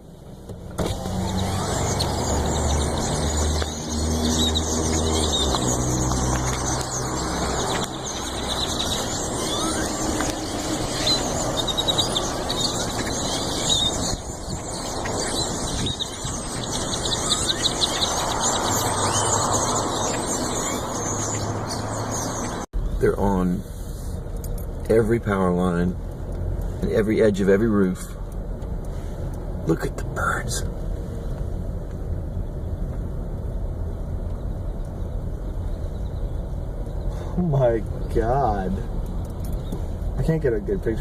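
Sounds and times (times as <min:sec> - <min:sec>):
car engine rumble: 0:00.0 - 0:41.0
flock of birds squeaky calls: 0:01.0 - 0:22.7.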